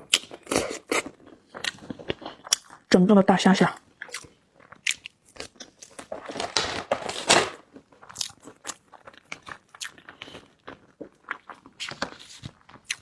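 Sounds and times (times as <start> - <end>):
biting and chewing: 4.0 - 13.0.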